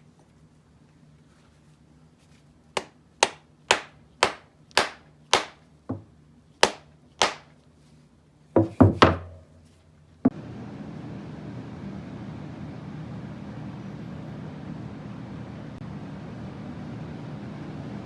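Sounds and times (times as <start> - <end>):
tool striking wood: 2.8 - 7.5, 8.6 - 9.5.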